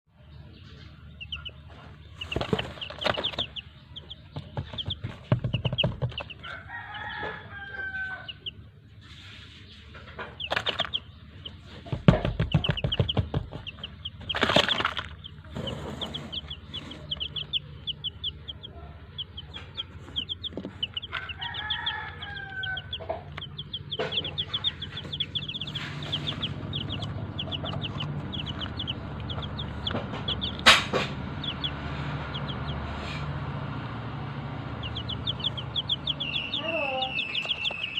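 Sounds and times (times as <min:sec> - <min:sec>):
chicks peeping: 0:00.1 - 0:37.9
chicken clucking: 0:00.4 - 0:33.3, 0:34.6 - 0:37.9
rooster crowing: 0:06.4 - 0:08.5, 0:21.0 - 0:23.3.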